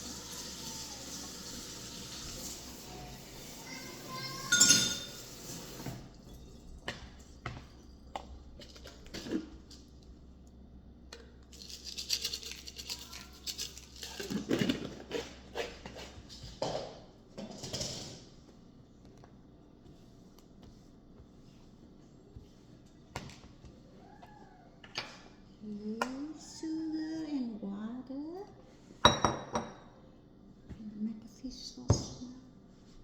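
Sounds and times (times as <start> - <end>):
dishes and utensils clattering: 3.6 - 7.8
dishes clinking: 4.2 - 7.6, 29.0 - 30.0.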